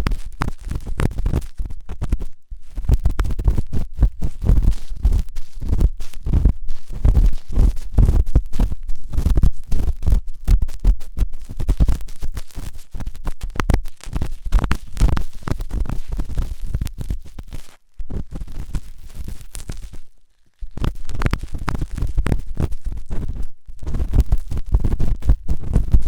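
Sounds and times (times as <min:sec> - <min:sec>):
ear pick scraping inside ear: 0:00.0 - 0:20.0.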